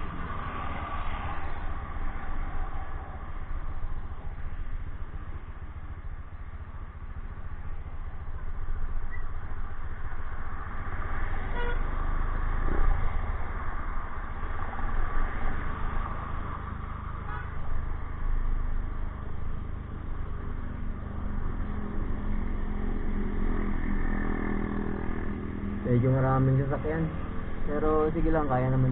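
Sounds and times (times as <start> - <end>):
road traffic rumble: 0.0 - 28.9
vehicle horn toot: 11.5 - 11.9, 17.3 - 17.5.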